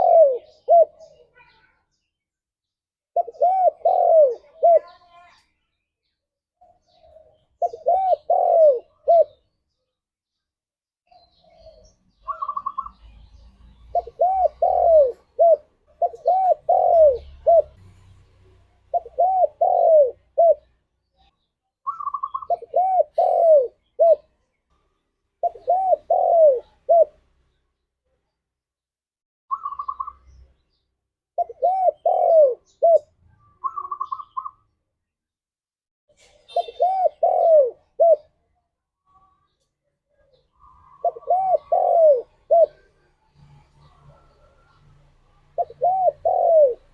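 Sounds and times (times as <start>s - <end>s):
dove cooing: 0.0s - 1.2s, 3.2s - 5.1s, 6.8s - 9.5s, 11.2s - 17.9s, 18.9s - 20.7s, 21.9s - 24.4s, 25.4s - 27.2s, 29.5s - 30.2s, 31.4s - 34.6s, 36.5s - 38.3s, 40.6s - 46.9s.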